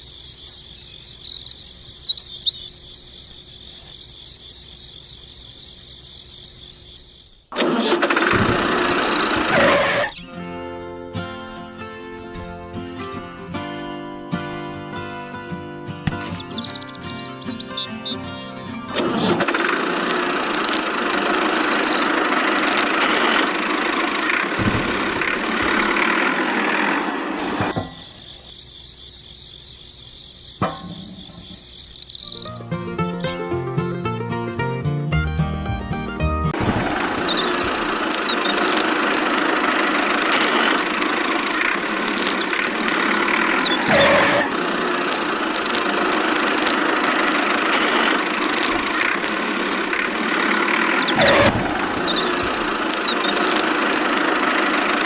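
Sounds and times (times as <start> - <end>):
small motor running: 7.5 - 10.2, 18.9 - 28.2, 36.6 - 55.0.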